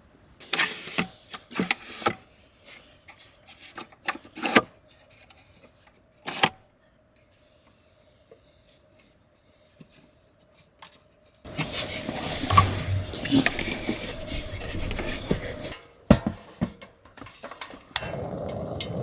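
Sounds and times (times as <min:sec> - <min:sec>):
faint steady hum: 0:11.5 - 0:15.8
loud continuous noisy background: 0:11.5 - 0:15.8.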